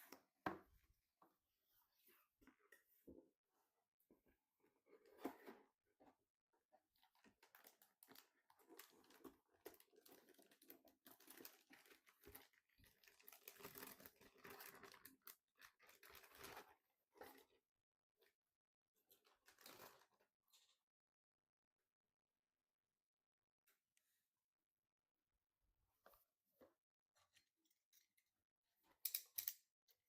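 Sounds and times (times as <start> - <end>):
faint rustling and crinkling: 0.0 - 18.4, 19.0 - 20.9.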